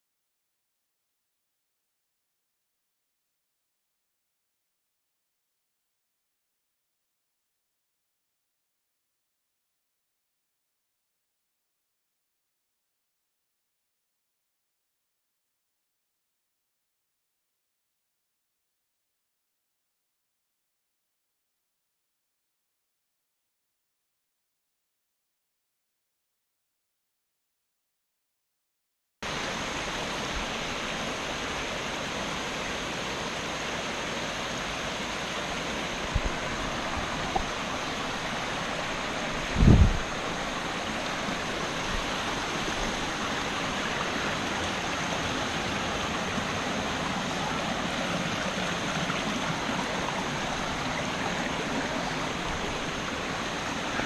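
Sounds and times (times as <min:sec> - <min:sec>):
waterfall rushing: 0:29.3 - 0:54.0.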